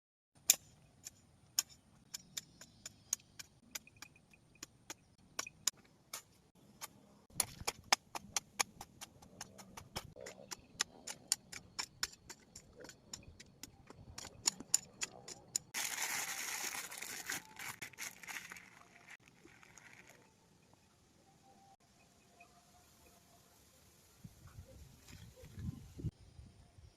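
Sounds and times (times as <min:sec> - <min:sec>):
sharp ticks and clicks: 0:00.4 - 0:15.8
soil scraping and rustling: 0:15.8 - 0:20.3.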